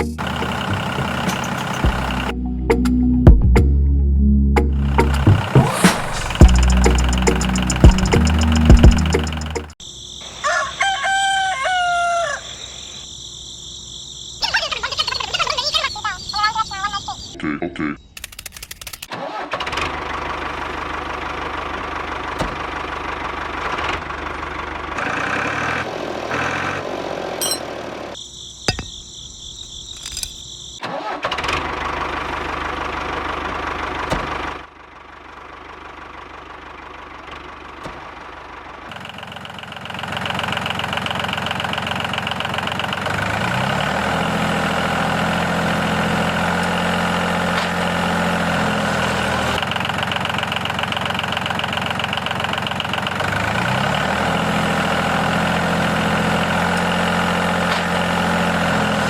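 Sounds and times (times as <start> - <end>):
small engine idling: 0.0 - 2.3, 4.8 - 9.8, 19.4 - 29.0, 31.0 - 59.0.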